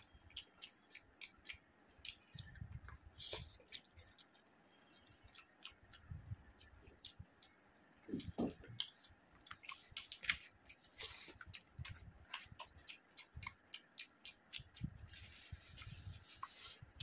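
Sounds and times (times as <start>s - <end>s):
close-miked chewing: 0.0s - 17.0s
wet mouth clicks and smacks: 0.2s - 4.5s, 5.2s - 7.6s, 8.2s - 15.3s
soft low thumps: 8.1s - 8.8s.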